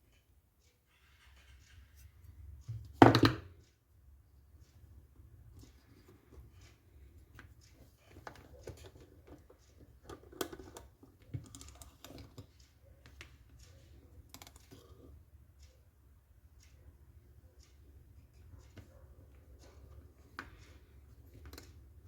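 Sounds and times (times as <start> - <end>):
small parts clicking and tapping: 4.6 - 15.8, 17.6 - 22.0.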